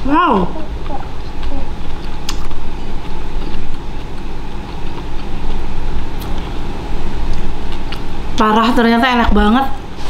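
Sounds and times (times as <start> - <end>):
close chewing of meat: 0.5 - 8.4.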